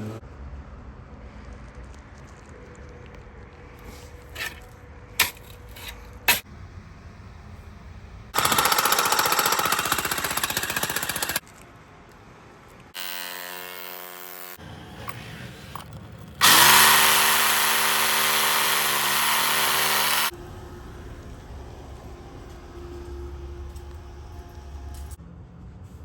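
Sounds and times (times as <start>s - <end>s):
power tool hammering rattle: 8.4s - 11.4s, 16.4s - 20.3s.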